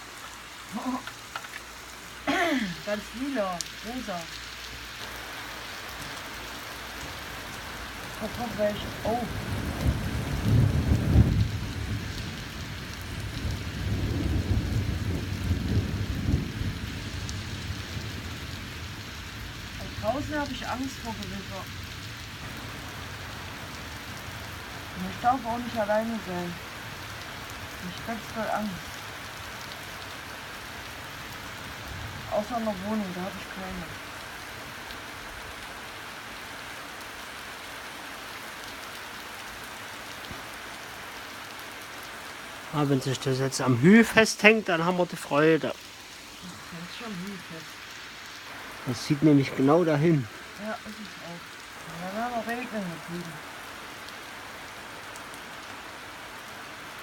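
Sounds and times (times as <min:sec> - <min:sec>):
steady rain: 0:00.0 - 0:57.0
thunder rumbling: 0:08.1 - 0:29.0.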